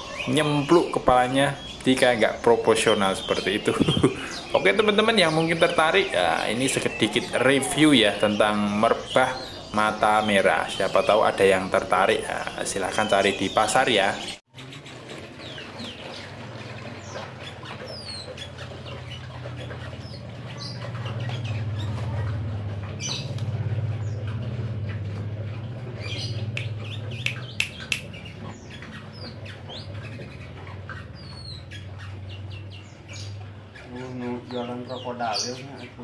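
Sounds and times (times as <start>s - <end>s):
songbird high chirps: 0.0s - 14.4s, 25.9s - 36.0s
sharp clicks: 26.4s - 28.3s.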